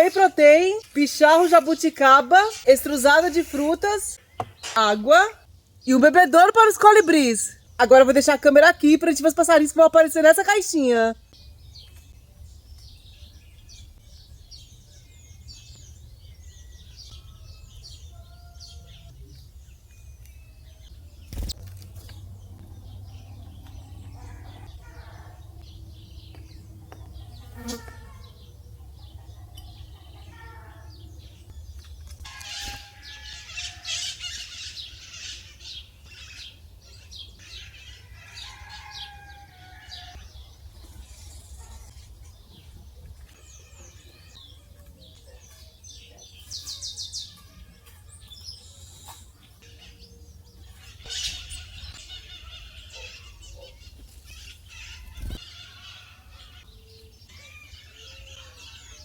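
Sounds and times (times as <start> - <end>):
small birds chirping: 0.0 - 59.0
wing flaps: 21.2 - 22.2, 54.0 - 55.5.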